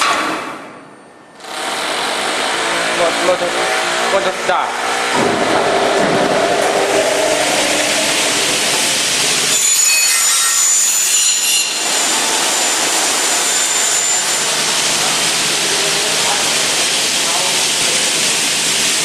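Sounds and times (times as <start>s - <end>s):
high ringing tones: 0.0s - 1.5s, 7.1s - 14.7s
saw blades running: 1.4s - 19.0s.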